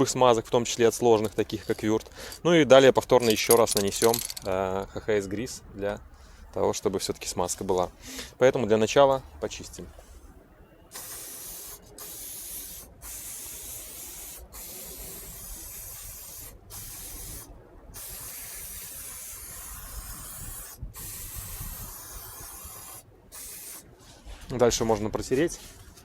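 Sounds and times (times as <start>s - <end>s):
aerosol spray hissing: 10.9s - 23.8s.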